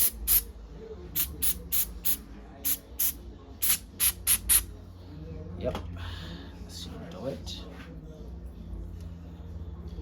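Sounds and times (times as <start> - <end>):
aerosol can spraying short squirts: 1.2 - 4.6.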